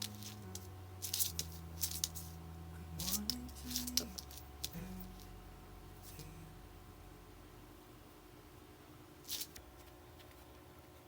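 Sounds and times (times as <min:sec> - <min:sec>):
soft background music: 0:00.0 - 0:07.7
crisp clicks: 0:03.0 - 0:05.3.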